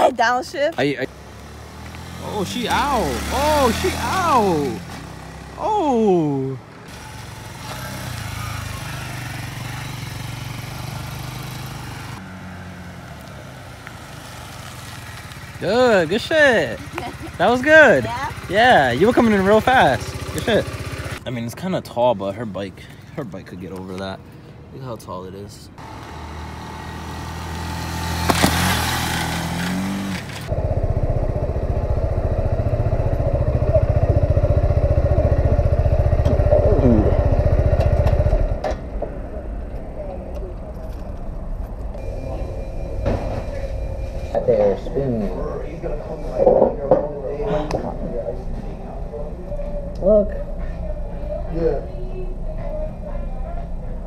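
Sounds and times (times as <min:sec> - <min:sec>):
motorcycle engine running: 0:01.4 - 0:12.4, 0:13.8 - 0:21.2, 0:25.8 - 0:40.3
motorcycle engine idling: 0:07.0 - 0:12.2, 0:13.8 - 0:21.2, 0:30.5 - 0:40.6.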